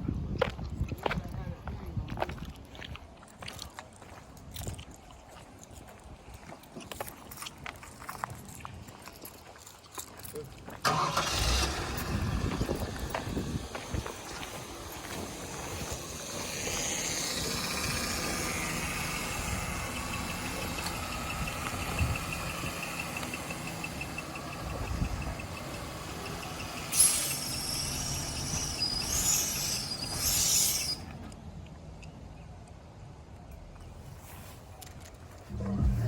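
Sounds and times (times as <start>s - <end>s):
car engine running: 10.9s - 28.6s, 35.4s - 36.0s
loud hiss: 26.4s - 31.0s.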